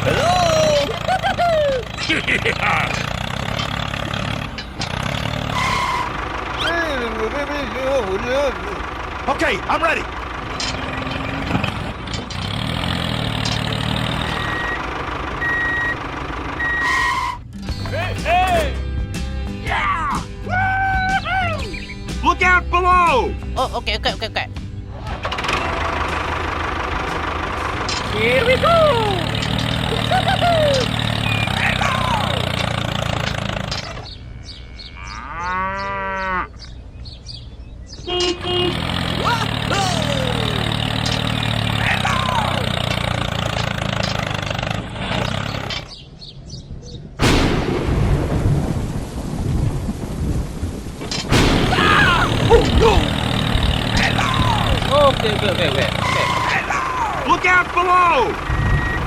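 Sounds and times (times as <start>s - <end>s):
vehicle engine running: 0.0s - 19.6s, 22.0s - 34.7s, 36.6s - 46.1s, 51.3s - 59.0s
reversing alarm beeps: 15.4s - 16.0s, 16.6s - 17.3s, 58.5s - 59.0s
cow mooing: 34.2s - 36.7s.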